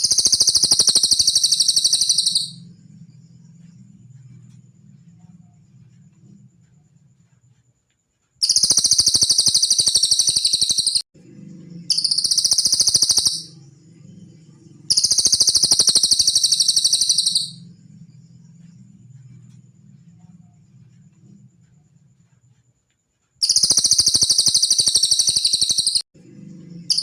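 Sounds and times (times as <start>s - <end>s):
songbird trilling: 0.0s - 2.6s, 8.4s - 11.0s, 11.9s - 13.6s, 14.9s - 17.6s, 23.4s - 26.0s.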